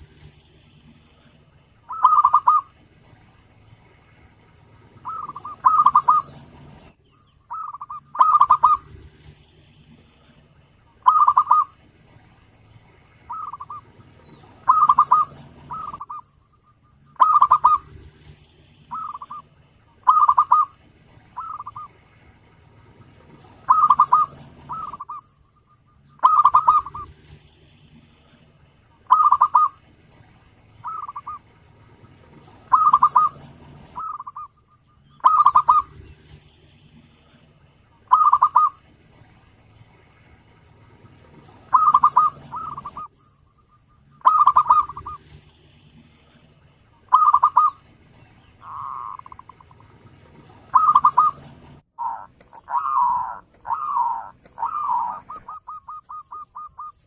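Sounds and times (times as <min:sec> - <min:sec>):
dove cooing: 0:01.9 - 0:02.8, 0:04.9 - 0:06.8, 0:07.5 - 0:09.0, 0:11.0 - 0:12.2, 0:13.3 - 0:18.3, 0:18.9 - 0:22.0, 0:23.2 - 0:27.4, 0:29.0 - 0:29.9, 0:30.8 - 0:31.6, 0:32.2 - 0:36.1, 0:38.0 - 0:38.9, 0:41.2 - 0:45.4, 0:47.1 - 0:47.9, 0:48.6 - 0:57.0.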